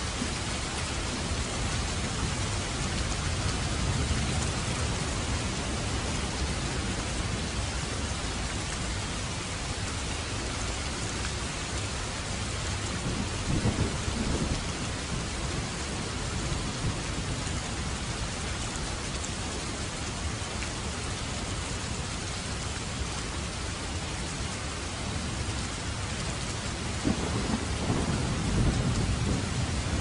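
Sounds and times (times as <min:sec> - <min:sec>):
low rumble of thunder: 0:00.0 - 0:10.1, 0:12.0 - 0:19.0, 0:25.0 - 0:30.0
steady rain falling: 0:00.0 - 0:30.0.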